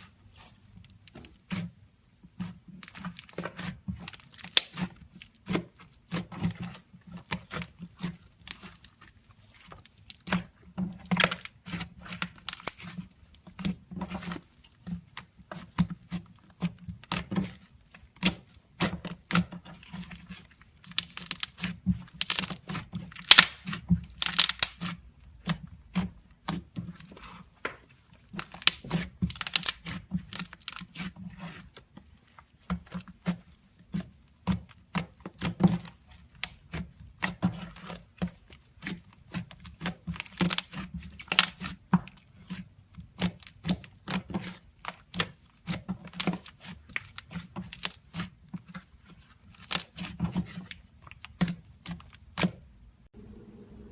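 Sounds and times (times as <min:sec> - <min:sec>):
slime popping and crackling: 0:02.8 - 0:06.3, 0:18.2 - 0:25.0, 0:38.6 - 0:41.8.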